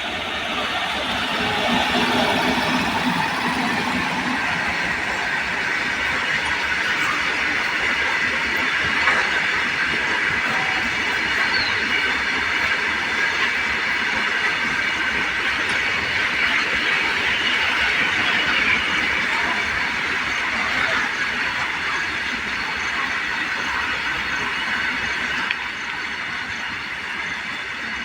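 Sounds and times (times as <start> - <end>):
train wheels rolling on rail: 0.0 - 28.0.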